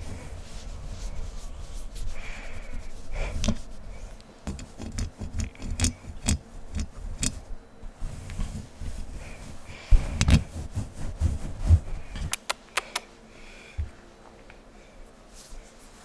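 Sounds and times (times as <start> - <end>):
sharp taps and clicks: 12.3 - 13.0.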